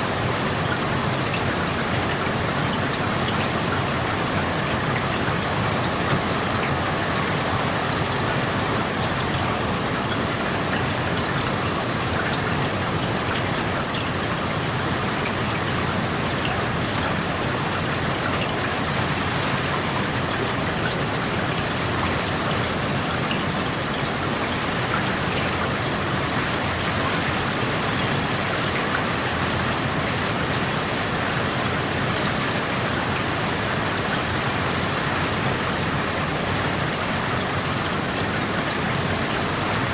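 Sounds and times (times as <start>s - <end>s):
small raindrop ticks: 0.0s - 8.0s, 8.8s - 27.7s, 28.8s - 32.5s
steady rain hiss: 0.0s - 39.9s.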